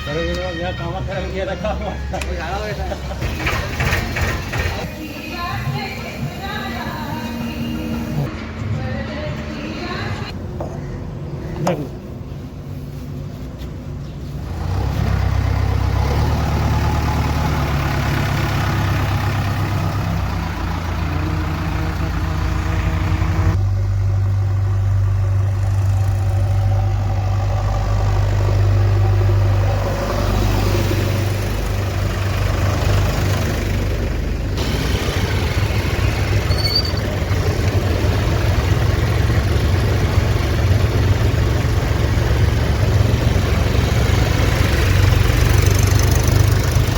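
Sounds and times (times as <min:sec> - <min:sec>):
diesel engine running: 0:01.4 - 0:11.9, 0:14.4 - 0:46.9.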